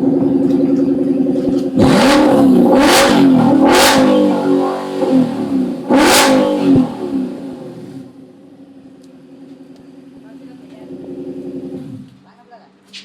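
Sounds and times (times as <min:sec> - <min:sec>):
car engine revving and idling: 0:00.0 - 0:12.3.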